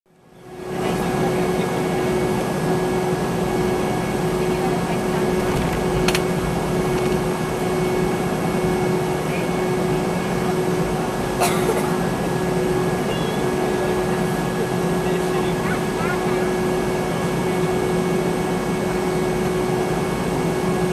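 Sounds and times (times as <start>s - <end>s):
airplane cabin drone: 0.2s - 20.9s
steady whine tone: 0.8s - 11.4s.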